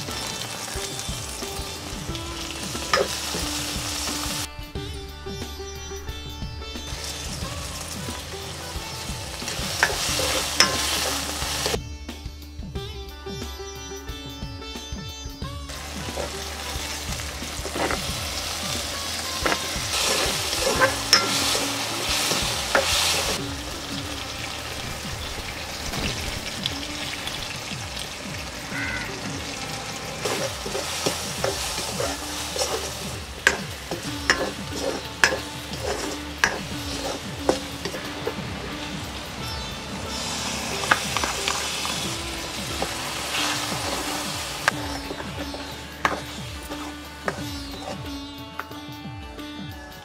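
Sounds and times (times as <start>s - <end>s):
vegetables sizzling in a pan: 0.0s - 4.5s, 6.9s - 11.8s, 15.7s - 48.2s
ladle scraping and knocking pan: 1.6s - 4.5s, 6.8s - 11.8s, 15.7s - 23.4s, 30.2s - 48.7s.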